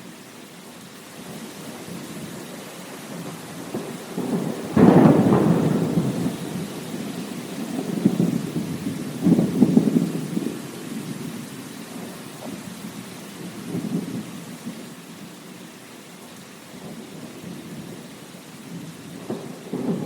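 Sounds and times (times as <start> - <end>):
steady rain: 0.0 - 20.0
thunder rumbling: 3.1 - 12.6, 18.7 - 20.0.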